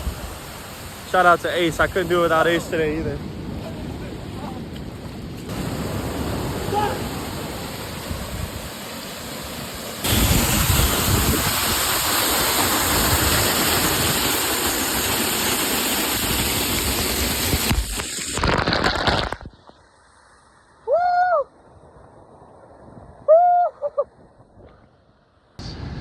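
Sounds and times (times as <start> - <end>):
waterfall rushing: 0.0 - 4.5, 5.5 - 18.5.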